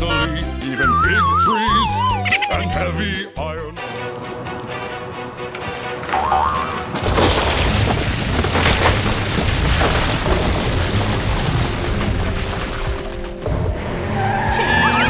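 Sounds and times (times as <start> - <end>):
music: 0.0 - 7.0, 11.7 - 15.0
loud rumbling crashing noise: 6.9 - 14.1.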